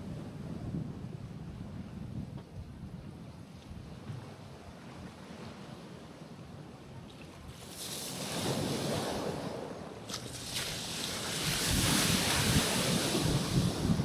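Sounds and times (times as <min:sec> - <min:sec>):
wind buffeting microphone: 0:00.0 - 0:05.2, 0:10.4 - 0:14.0
waves washing onto rocks: 0:07.5 - 0:14.0.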